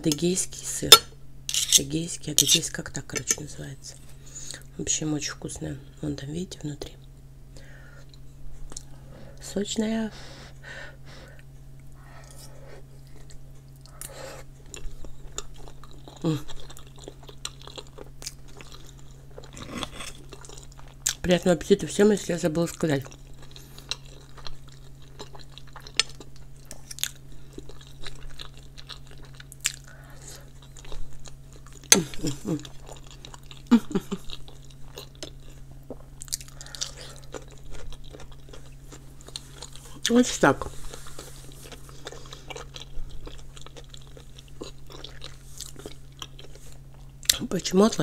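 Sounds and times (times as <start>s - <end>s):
steady low hum: 0.0s - 48.0s
person chewing food: 7.6s - 9.4s, 10.5s - 21.2s, 22.7s - 47.4s.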